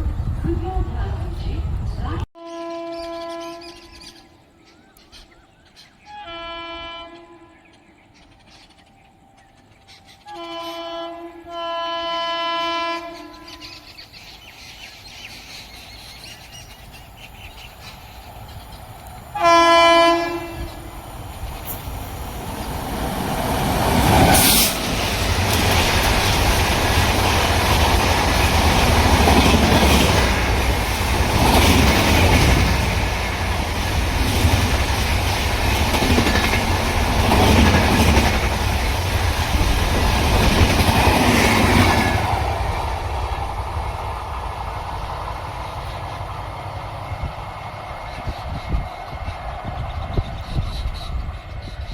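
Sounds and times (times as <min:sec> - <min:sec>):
train horn blasts: 0:02.4 - 0:03.9, 0:06.0 - 0:07.7, 0:10.2 - 0:13.8, 0:19.3 - 0:20.9.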